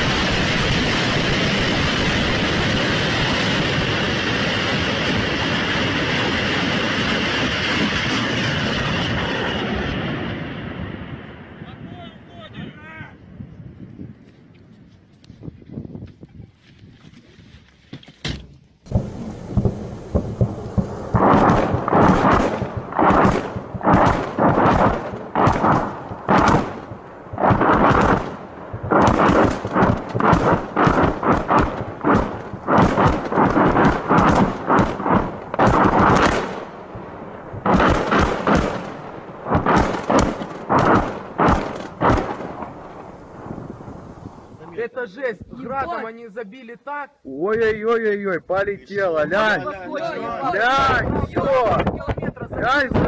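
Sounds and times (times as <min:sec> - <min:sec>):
rocket launcher firing salvo: 0:18.9 - 0:44.8.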